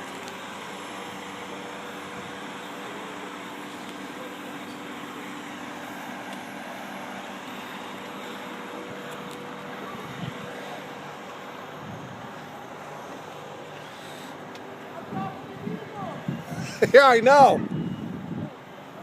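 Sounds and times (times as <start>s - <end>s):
fire truck engine droning: 0.0s - 19.0s
wind noise: 9.9s - 10.5s, 11.8s - 12.3s, 15.0s - 18.7s.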